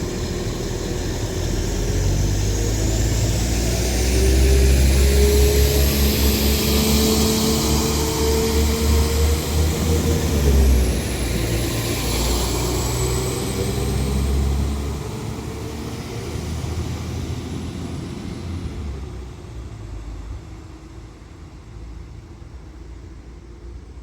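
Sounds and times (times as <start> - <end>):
train engine whining: 0.0 - 23.2.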